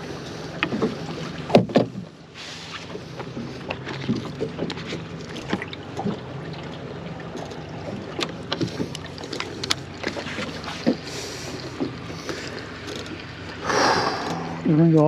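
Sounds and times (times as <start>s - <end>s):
boat engine hum: 0.0s - 15.0s.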